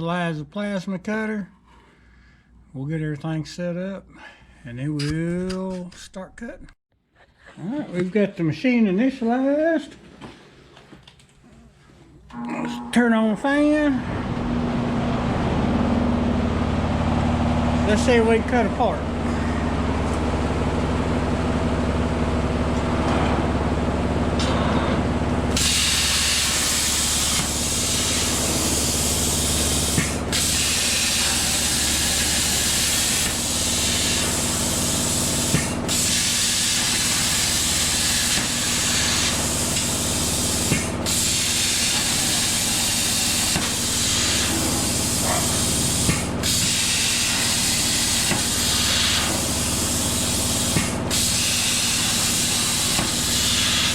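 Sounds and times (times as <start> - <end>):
low machine hum: 12.3 - 25.7
plasma cutter hissing: 25.5 - 53.9.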